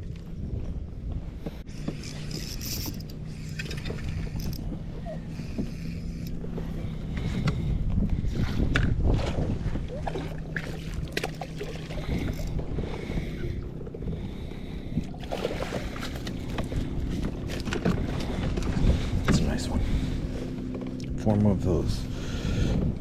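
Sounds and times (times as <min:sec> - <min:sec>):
wind on microphone: 0:00.0 - 0:20.5, 0:21.6 - 0:23.0
water washing against hull: 0:00.0 - 0:23.0.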